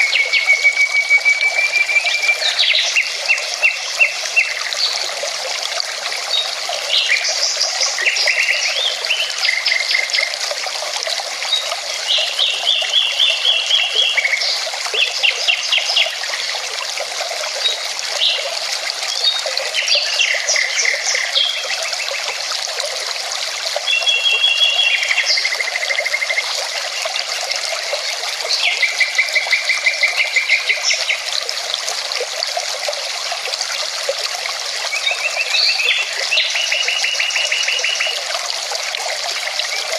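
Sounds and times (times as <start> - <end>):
mountain river running: 0.0 - 39.9
songbirds singing: 11.5 - 16.2, 17.6 - 22.4, 23.8 - 31.3, 34.9 - 38.2.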